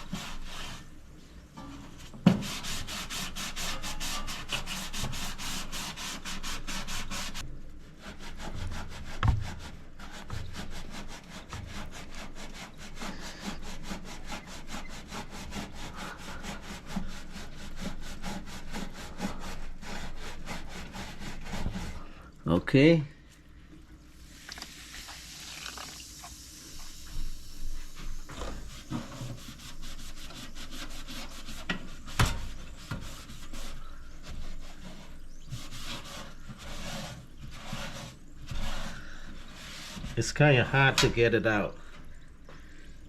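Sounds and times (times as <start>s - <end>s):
sponge scrubbing: 0.0s - 1.0s, 2.0s - 22.2s, 27.2s - 40.9s.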